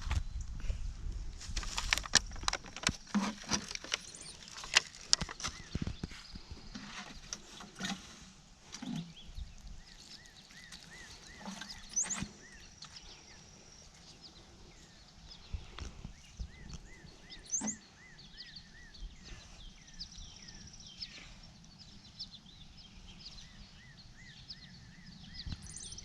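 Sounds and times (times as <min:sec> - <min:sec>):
hands planting in garden soil: 0:00.0 - 0:22.6.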